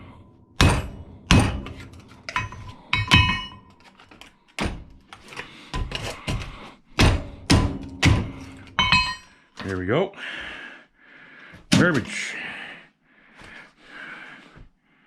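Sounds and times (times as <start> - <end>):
hammer striking metal: 0.6 - 3.7, 7.0 - 9.3.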